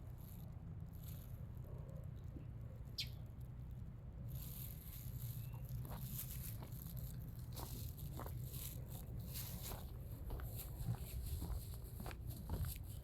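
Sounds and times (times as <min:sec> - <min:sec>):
footsteps on gravel: 0:05.8 - 0:12.8.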